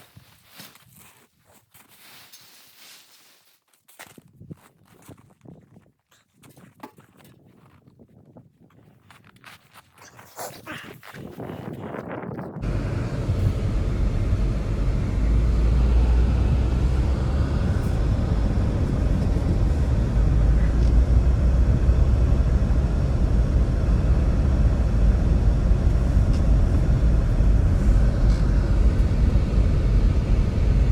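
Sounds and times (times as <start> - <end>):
blizzard wind buffeting microphone: 11.1 - 30.9.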